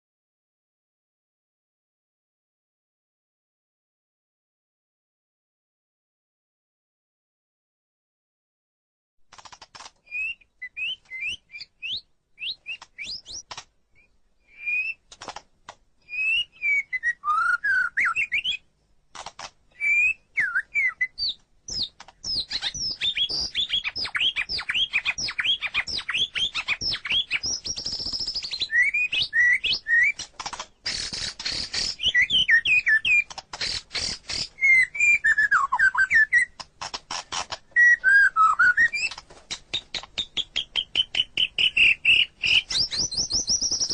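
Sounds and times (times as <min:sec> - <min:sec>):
bird singing whistled notes: 0:10.1 - 0:13.4, 0:14.0 - 0:15.0, 0:16.0 - 0:18.7, 0:19.7 - 0:30.2, 0:30.8 - 0:36.6, 0:37.7 - 0:39.2, 0:39.9 - 0:43.9
harsh rattling bird notes: 0:29.4 - 0:34.8.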